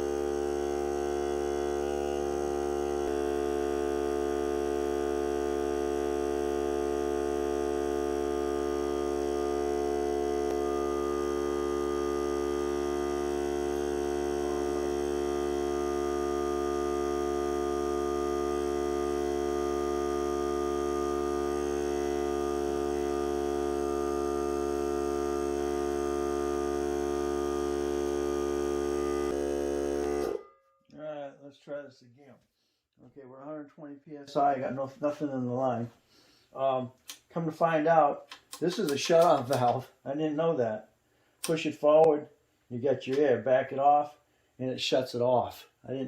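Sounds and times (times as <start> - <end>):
air compressor running: 0.0 - 30.5.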